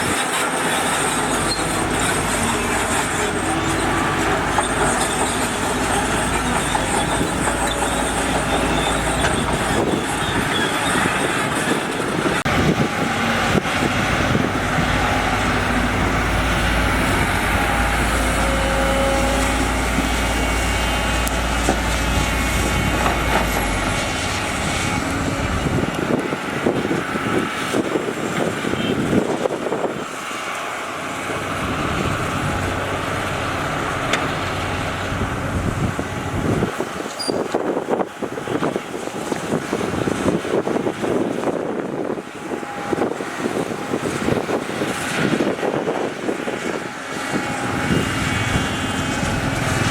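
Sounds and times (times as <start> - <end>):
machinery clanks and knocks: 0.0 - 18.6, 19.4 - 27.4
diesel engines rumbling: 0.0 - 49.9.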